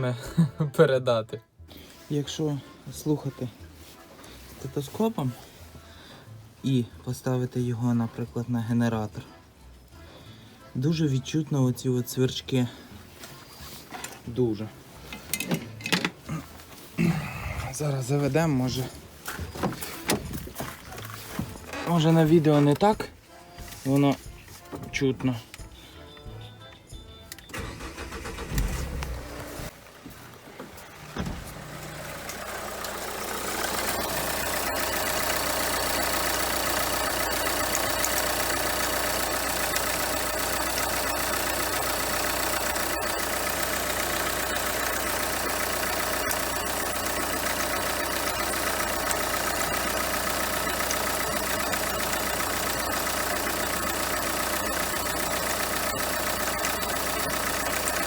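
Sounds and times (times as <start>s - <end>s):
diesel engine starting and idling: 27.4s - 29.8s, 30.4s - 58.0s.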